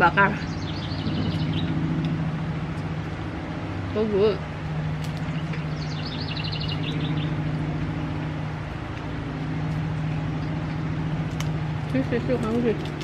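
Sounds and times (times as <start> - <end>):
low machine hum: 0.0 - 13.0
high chirps: 0.4 - 3.0, 5.2 - 8.4.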